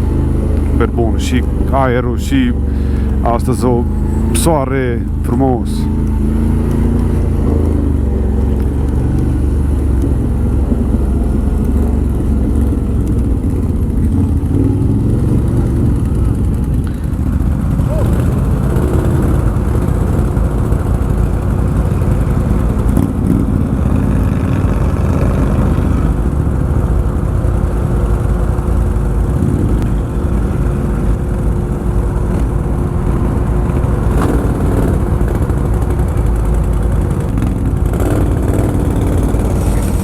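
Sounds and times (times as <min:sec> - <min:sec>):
atv engine droning: 0:00.0 - 0:40.0.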